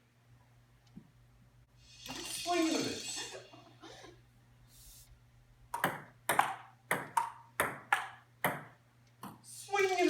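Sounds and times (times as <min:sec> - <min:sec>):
ping-pong ball clicks: 0:05.8 - 0:09.4.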